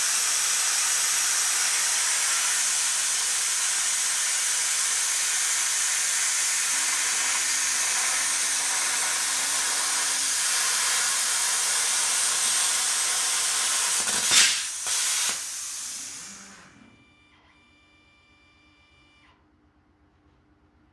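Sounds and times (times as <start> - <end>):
plasma cutter hissing: 0.0 - 16.6.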